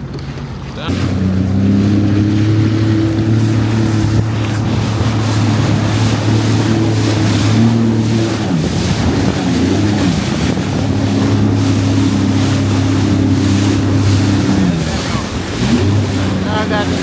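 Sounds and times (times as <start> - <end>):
jet ski engine running: 0.0 - 17.0
water rushing: 0.0 - 17.0
wind buffeting microphone: 0.0 - 17.0.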